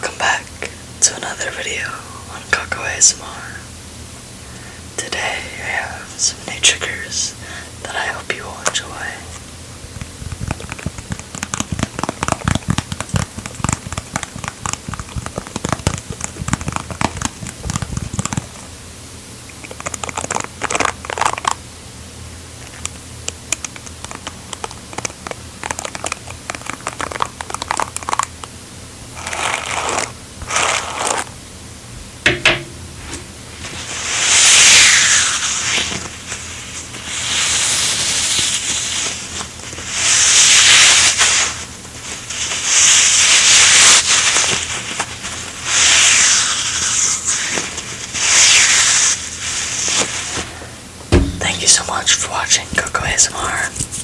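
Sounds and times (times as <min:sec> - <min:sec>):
crackling crinkling taps: 0:10.0 - 0:18.5, 0:51.0 - 0:53.9.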